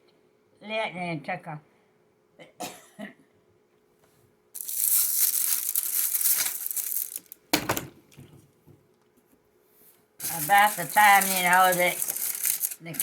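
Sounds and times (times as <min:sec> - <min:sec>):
packaging crinkling: 0:04.6 - 0:07.8, 0:10.2 - 0:13.0.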